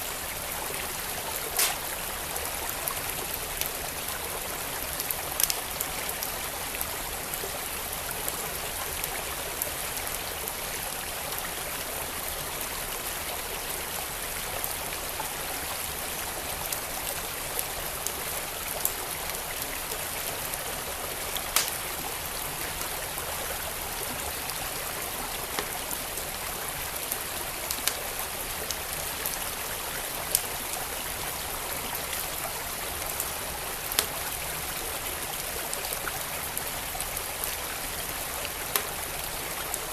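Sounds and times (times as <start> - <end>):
wood fire crackling: 1.3 - 2.1, 21.4 - 22.1, 27.7 - 28.1, 33.8 - 34.3.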